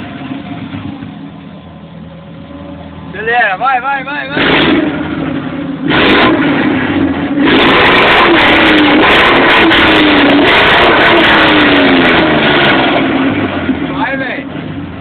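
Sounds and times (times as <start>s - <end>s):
car engine revving through loud exhaust: 4.1s - 15.0s.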